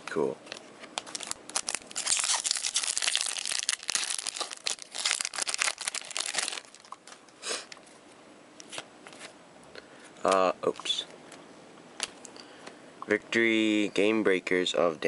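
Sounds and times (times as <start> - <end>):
wrapper crinkling and tearing: 1.0 - 7.1.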